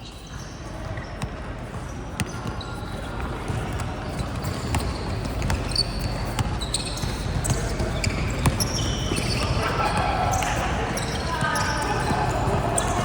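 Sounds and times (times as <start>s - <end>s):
sneaker squeaks: 0.0s - 13.0s
basketball bouncing on court: 0.8s - 10.1s
murmur of voices: 7.2s - 13.0s.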